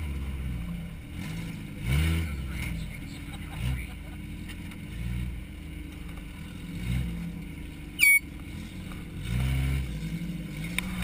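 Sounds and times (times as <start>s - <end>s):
small car engine revving: 0.0s - 11.0s
short high-pitched squeak: 8.0s - 8.3s.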